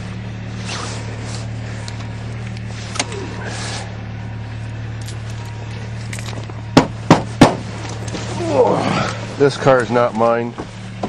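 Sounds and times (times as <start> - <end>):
engine idling: 0.0 - 11.0
sharp knocks: 6.8 - 7.7.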